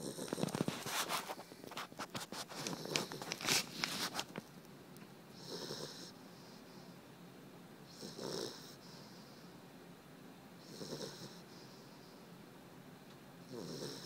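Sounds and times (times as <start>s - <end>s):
puppy snoring: 0.0s - 0.9s, 2.6s - 3.6s, 5.3s - 6.6s, 7.8s - 9.4s, 10.6s - 12.1s, 13.4s - 14.0s
scratchy rustling and clicking: 0.3s - 4.5s.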